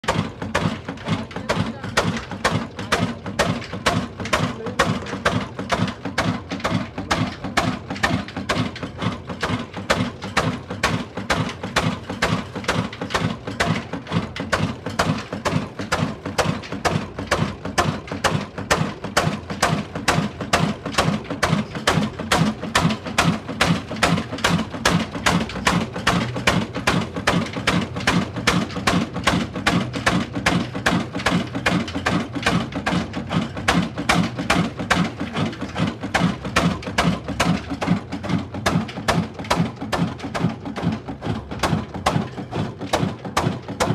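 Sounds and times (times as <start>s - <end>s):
diesel engine exhaust beating: 0.0s - 43.9s.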